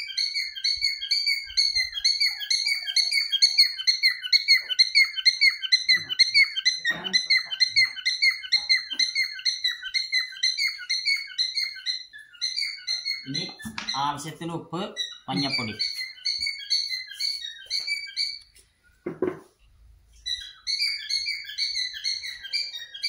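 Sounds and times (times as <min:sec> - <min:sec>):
pet birds chirping: 0:00.0 - 0:23.0
faint knocks: 0:19.0 - 0:19.6.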